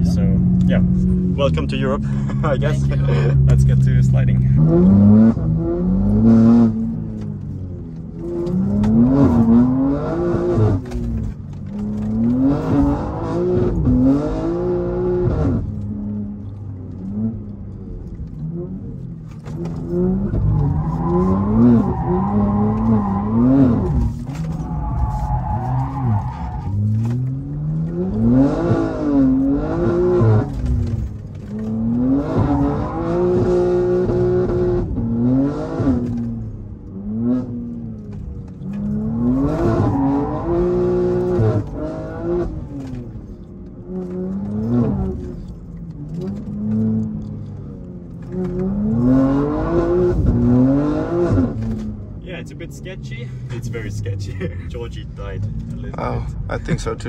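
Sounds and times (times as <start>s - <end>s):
car engine revving: 0.0s - 57.0s
tyre squeal: 20.3s - 27.2s.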